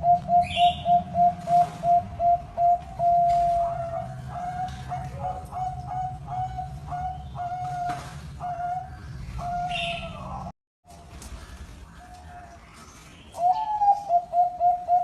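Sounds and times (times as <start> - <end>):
dove cooing: 0.0 - 10.3, 13.4 - 15.0.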